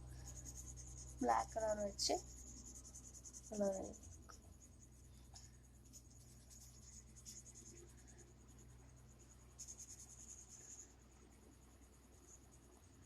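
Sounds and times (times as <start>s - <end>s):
marker scratching on paper: 0.2s - 4.8s, 5.4s - 8.1s, 9.6s - 10.8s.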